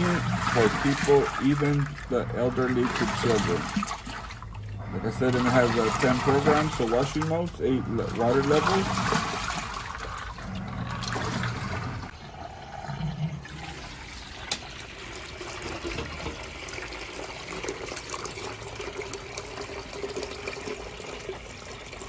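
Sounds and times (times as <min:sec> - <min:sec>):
water draining into a bucket: 0:00.0 - 0:22.0.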